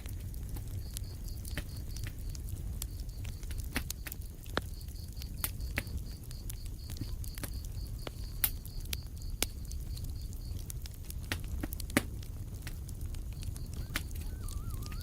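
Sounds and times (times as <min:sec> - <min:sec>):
wood fire crackling: 0:00.0 - 0:15.0
faint high-pitched chirping pulse: 0:13.4 - 0:15.0.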